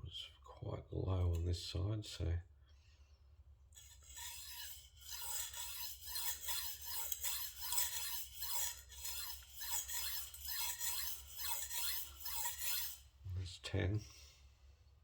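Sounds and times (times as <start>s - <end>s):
knife scraping on sharpening stone: 3.8s - 13.1s.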